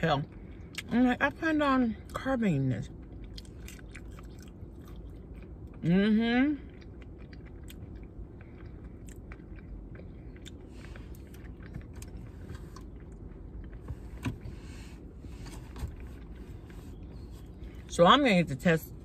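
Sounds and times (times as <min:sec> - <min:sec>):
steady low hum: 0:00.0 - 0:19.0
person chewing fried food: 0:02.9 - 0:17.8.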